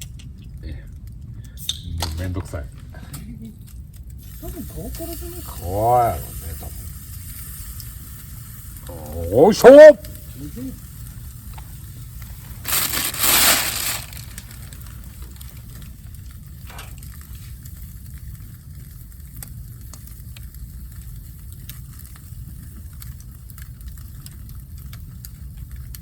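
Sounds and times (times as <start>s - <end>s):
campfire crackling and popping: 0.0s - 26.0s
loud crunching crinkling: 12.5s - 15.6s.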